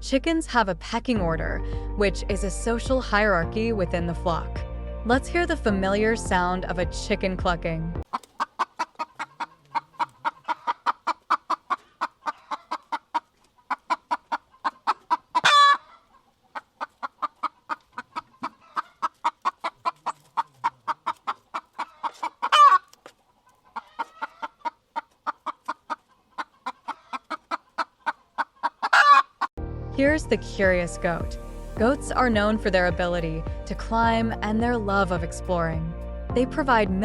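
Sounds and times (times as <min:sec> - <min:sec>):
chicken clucking: 0:08.1 - 0:29.5
chicken squawking: 0:08.1 - 0:29.5.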